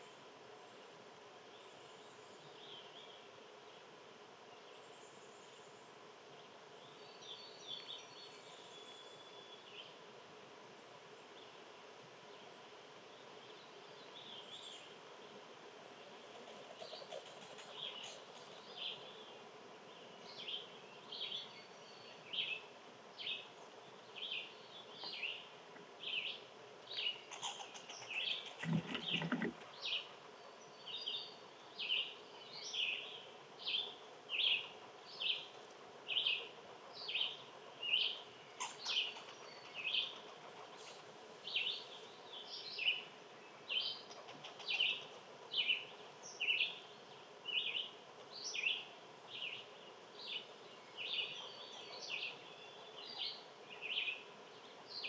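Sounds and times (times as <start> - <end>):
bird chirping: 16.7 - 55.0.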